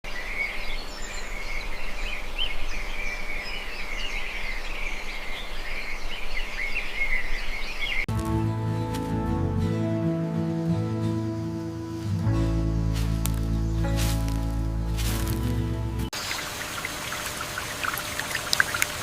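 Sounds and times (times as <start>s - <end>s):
birds chirping: 0.1s - 9.3s, 11.0s - 19.0s
faint outdoor hiss: 7.9s - 19.0s
music: 8.1s - 16.1s.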